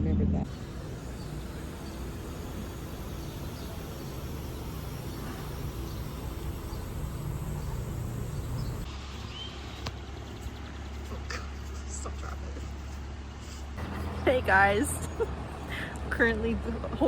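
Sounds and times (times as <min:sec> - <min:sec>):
faint chirps: 0:00.5 - 0:12.1.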